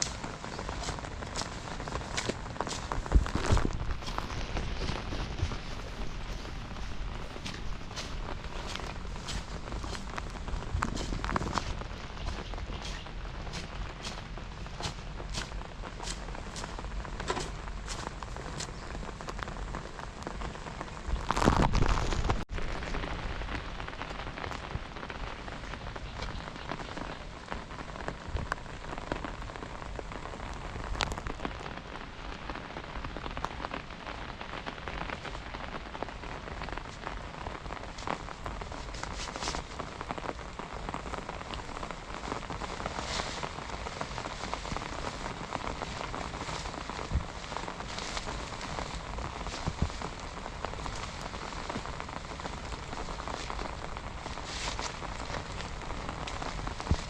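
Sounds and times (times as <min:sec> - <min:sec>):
rain drops ticking on surface: 0:00.0 - 0:57.0.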